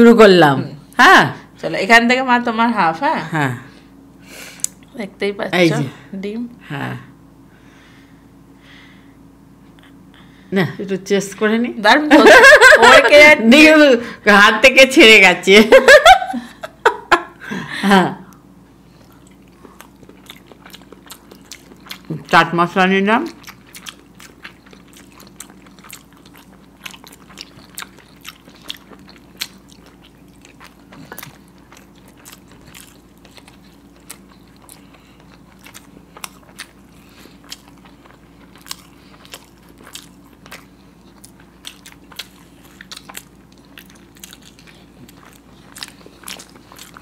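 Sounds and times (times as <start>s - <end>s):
faint low hum: 0.0s - 47.0s
people chewing eggs: 18.3s - 47.0s.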